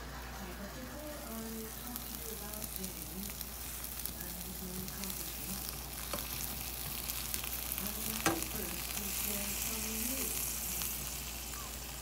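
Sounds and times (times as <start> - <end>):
sandwiches sizzling in a skillet: 0.0 - 12.0.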